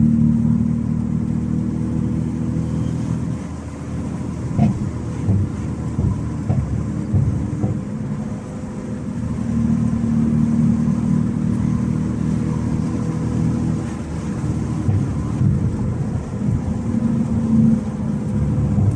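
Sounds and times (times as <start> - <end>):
car exhaust deep rumble: 0.0 - 18.9.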